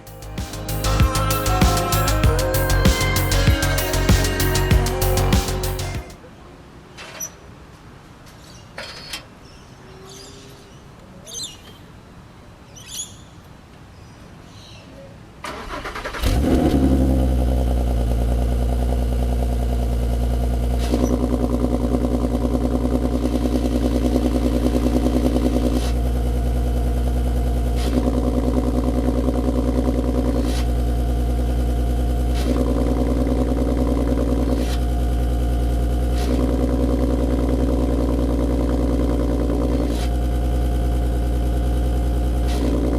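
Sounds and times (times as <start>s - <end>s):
car engine cranking and idling: 0.0s - 6.1s, 15.5s - 42.9s.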